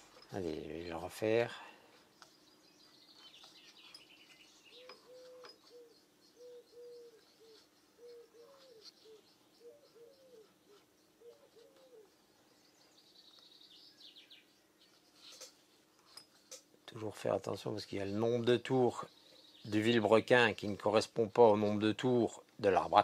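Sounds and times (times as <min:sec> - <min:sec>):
low cooing bird calls: 0:02.2 - 0:15.6.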